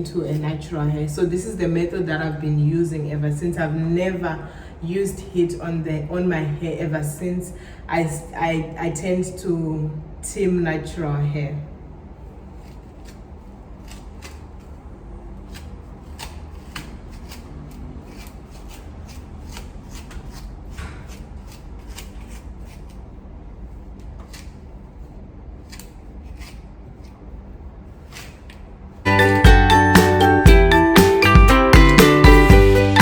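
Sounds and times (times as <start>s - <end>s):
music: 29.1s - 33.0s.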